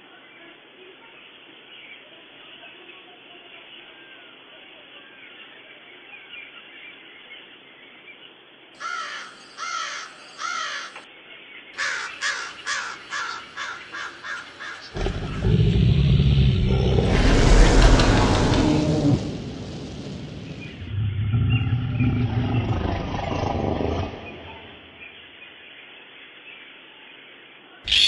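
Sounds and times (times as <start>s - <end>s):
harsh parrot calls: 8.8s - 11.0s, 11.8s - 19.2s
loud rough noise: 15.0s - 22.6s.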